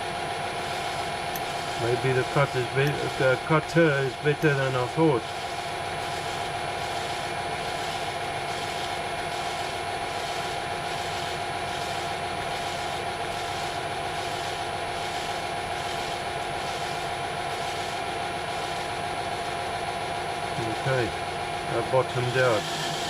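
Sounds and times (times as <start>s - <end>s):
metal lathe cutting: 0.7s - 8.9s, 20.6s - 23.0s.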